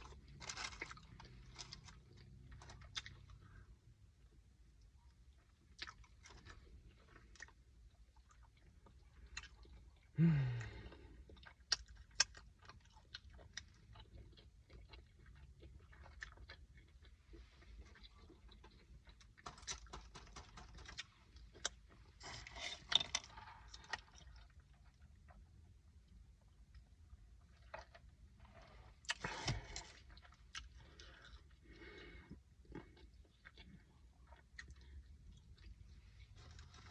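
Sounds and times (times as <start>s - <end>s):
chewing and crunching food: 0.0s - 36.9s
low throat hum: 10.1s - 11.2s.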